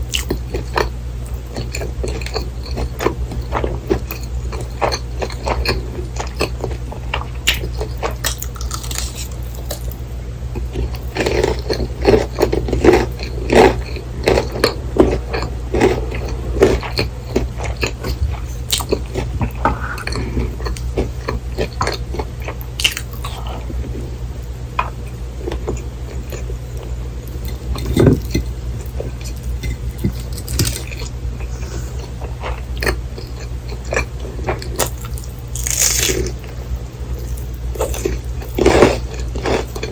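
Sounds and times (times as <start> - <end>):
crunchy bites: 3.9 - 10.0, 10.8 - 23.4, 33.9 - 36.4
wet chewing: 25.5 - 36.6.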